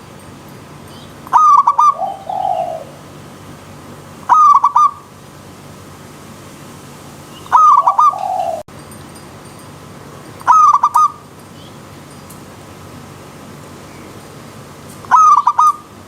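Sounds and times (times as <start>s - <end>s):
dove cooing: 1.3s - 3.4s, 4.3s - 5.1s, 7.4s - 8.7s, 10.4s - 11.2s, 15.0s - 15.9s.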